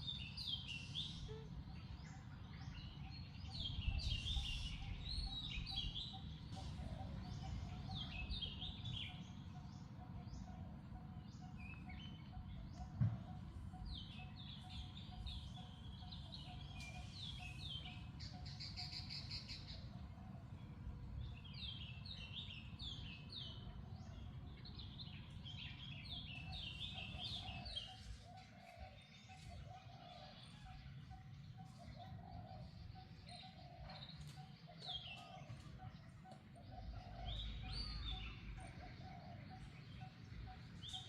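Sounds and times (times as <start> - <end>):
birds chirping: 0.0 - 41.0
steady background noise: 0.0 - 41.0
low thump: 13.0 - 13.4.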